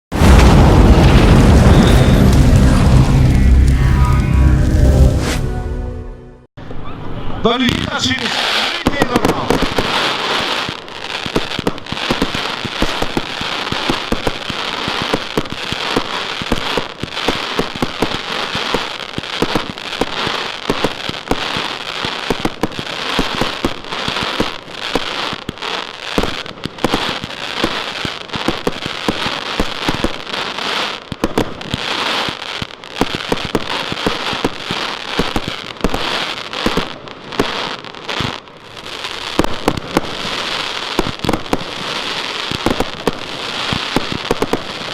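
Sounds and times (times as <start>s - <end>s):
firecrackers popping and crackling: 0.1s - 4.2s, 7.6s - 44.9s.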